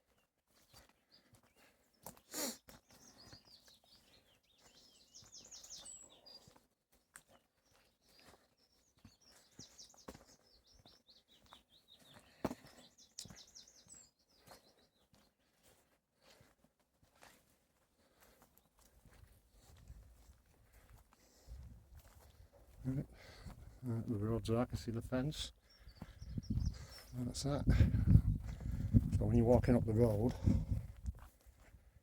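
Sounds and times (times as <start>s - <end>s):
faint footsteps on a path: 0.0s - 32.0s
songbird singing: 0.1s - 15.6s, 22.3s - 31.0s.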